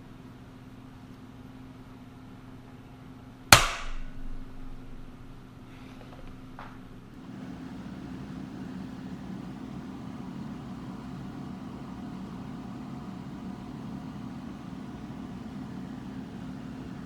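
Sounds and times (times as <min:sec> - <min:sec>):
motor humming with whine: 0:07.1 - 0:17.0.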